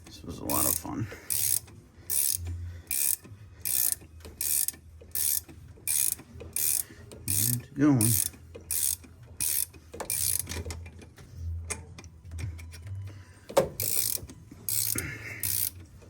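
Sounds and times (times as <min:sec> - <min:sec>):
ratchet wrench clicking: 0:00.5 - 0:10.7, 0:13.7 - 0:15.9.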